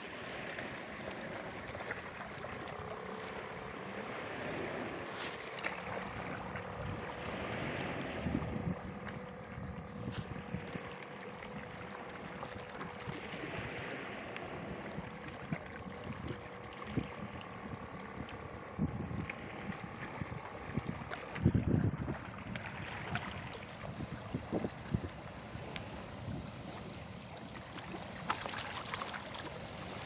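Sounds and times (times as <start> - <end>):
faint steady hum: 0.0 - 30.0
water around small boat: 0.0 - 30.0
wind buffeting microphone: 6.1 - 10.9, 14.6 - 26.9.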